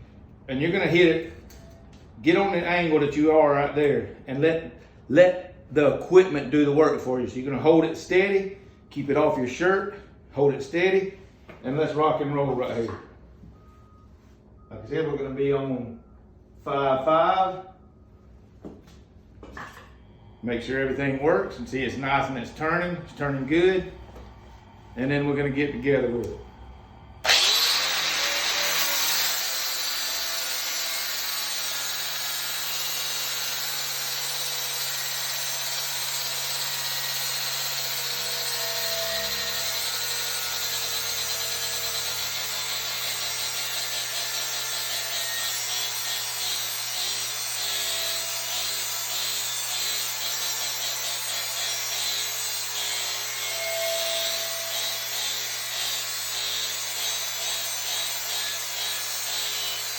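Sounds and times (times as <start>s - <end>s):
steady hum: 15.9s - 28.4s
angle grinder cutting metal: 27.2s - 59.9s.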